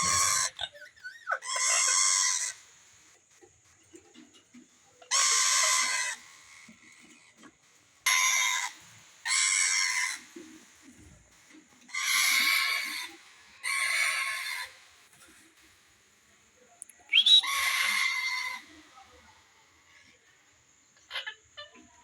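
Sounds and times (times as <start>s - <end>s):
parakeet squawking: 17.1s - 18.6s.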